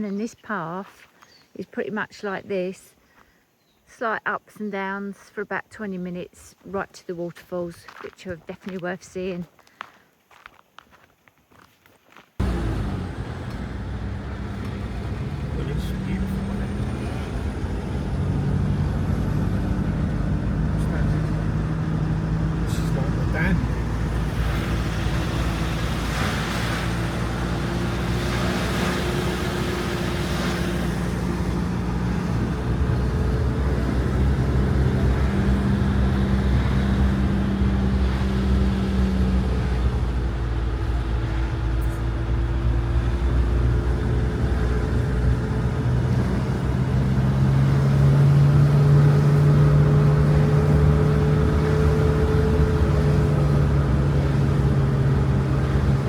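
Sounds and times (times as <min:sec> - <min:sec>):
road noise: 0:12.4 - 0:56.0
vehicle engine drone: 0:12.4 - 0:56.0.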